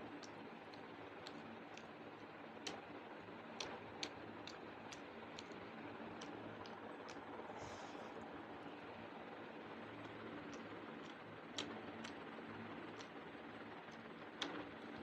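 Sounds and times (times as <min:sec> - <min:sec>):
faint steady hum: 0:00.0 - 0:15.0
soft eating clicks: 0:00.0 - 0:15.0.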